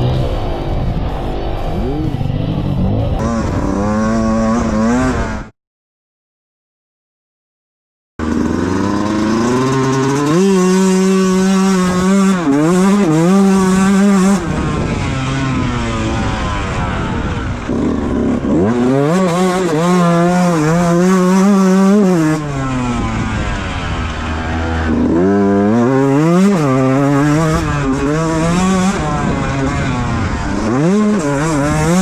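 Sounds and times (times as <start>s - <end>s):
two-stroke motorcycle revving: 0.0s - 5.5s, 8.2s - 32.0s.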